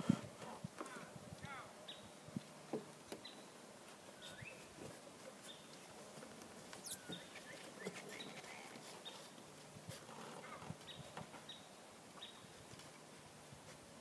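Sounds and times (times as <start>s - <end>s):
small birds chirping and whistling: 4.2s - 4.7s, 6.8s - 9.3s.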